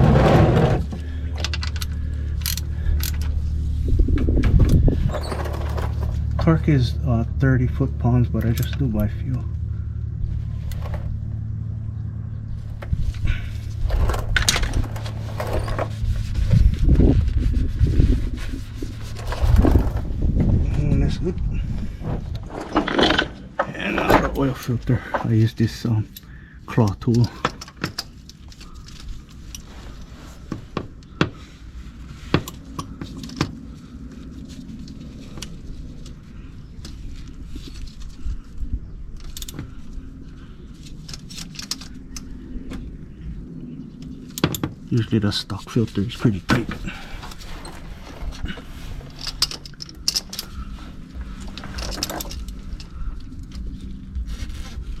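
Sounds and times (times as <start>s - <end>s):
steady low hum: 0.0s - 55.0s
ratchet knocking and scraping metal: 49.0s - 54.4s.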